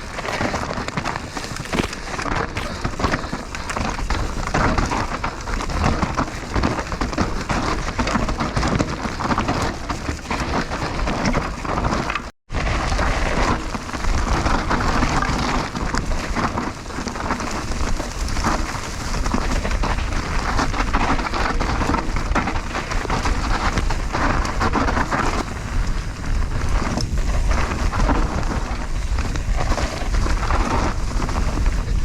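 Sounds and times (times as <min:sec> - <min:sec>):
bike tyres rumbling and rattling: 0:00.0 - 0:32.0
wind buffeting microphone: 0:12.5 - 0:32.0.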